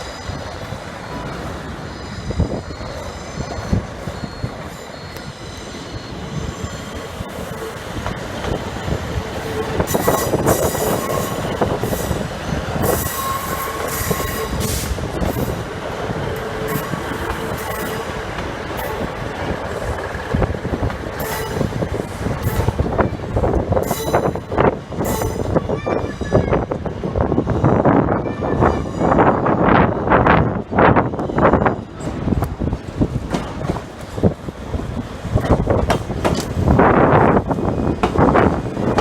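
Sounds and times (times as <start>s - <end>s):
train wheels squealing on rails: 0.0s - 32.4s
train wheels knocking over track: 32.0s - 34.4s, 35.3s - 39.0s.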